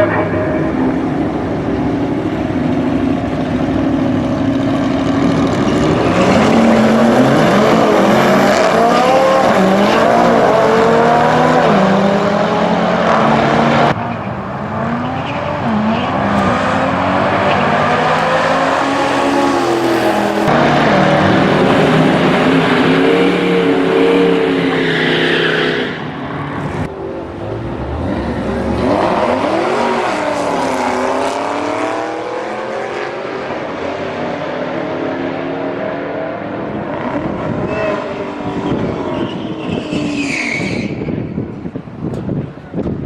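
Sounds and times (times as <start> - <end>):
supercar engines revving: 0.0 - 41.4.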